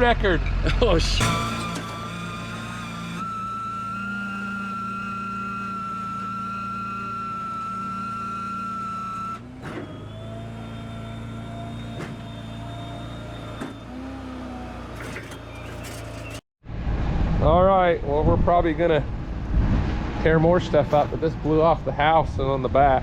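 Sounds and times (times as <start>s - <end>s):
vehicle engine whining: 0.0s - 17.2s.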